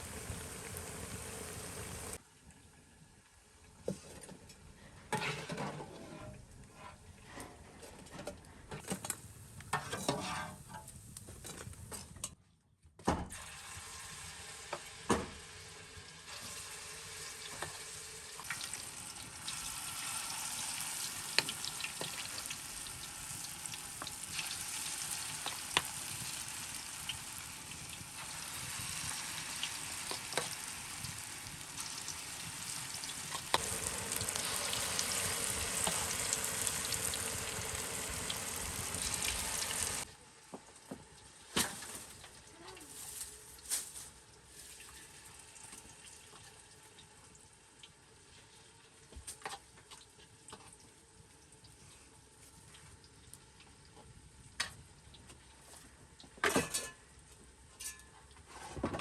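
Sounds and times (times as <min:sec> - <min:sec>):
food sizzling in hot oil: 0:00.0 - 0:02.2, 0:13.4 - 0:40.1.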